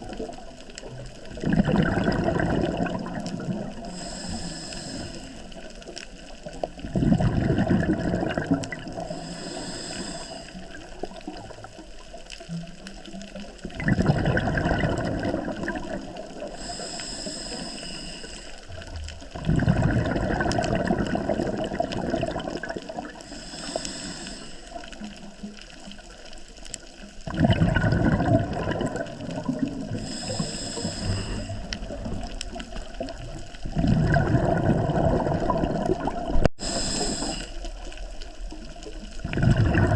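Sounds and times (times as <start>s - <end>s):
exhaled bubbles gurgling: 0.0s - 39.9s
inhaling through regulator hiss: 3.8s - 5.7s, 9.0s - 11.0s, 16.4s - 18.8s, 23.1s - 25.1s, 29.9s - 33.1s, 36.6s - 38.0s.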